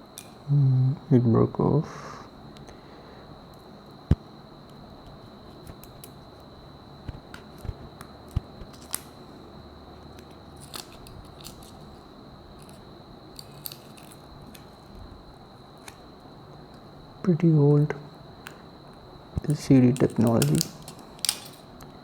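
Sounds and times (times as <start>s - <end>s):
faint high whine: 0.0s - 22.0s
small clicks and crackles: 4.6s - 9.2s, 10.0s - 16.9s, 18.4s - 22.0s.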